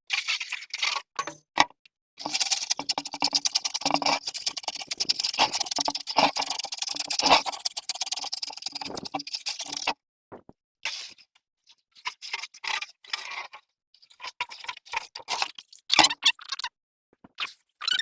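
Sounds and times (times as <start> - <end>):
scraping and scrubbing: 2.2 - 10.5.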